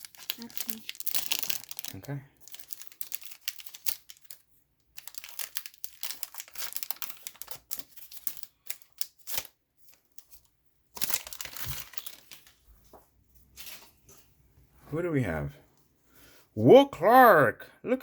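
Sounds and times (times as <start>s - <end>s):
card pack wrapper tearing and crinkling: 0.0s - 12.6s.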